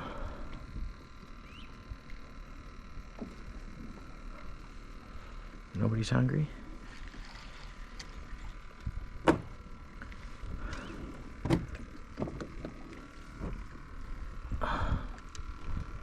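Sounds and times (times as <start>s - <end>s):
water: 0.0s - 16.0s
wind: 0.0s - 16.0s
gear knocking on plastic hull: 11.4s - 13.7s.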